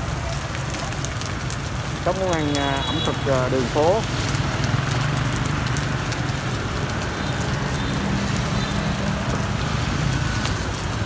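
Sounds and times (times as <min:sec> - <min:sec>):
street traffic humming: 0:00.0 - 0:11.0
food sizzling in oil: 0:01.2 - 0:11.0.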